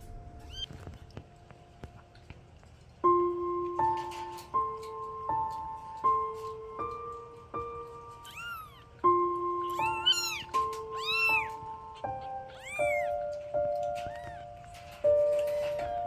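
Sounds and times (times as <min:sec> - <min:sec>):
soft piano music: 0:00.0 - 0:16.0
kittens mewing: 0:00.4 - 0:00.8, 0:08.1 - 0:16.0.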